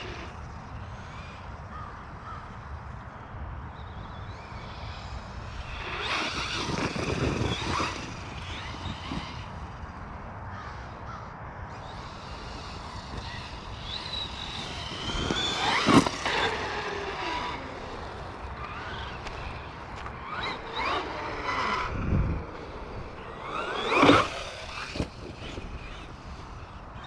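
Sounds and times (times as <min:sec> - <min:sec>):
rc truck motor whine: 0:00.0 - 0:27.0.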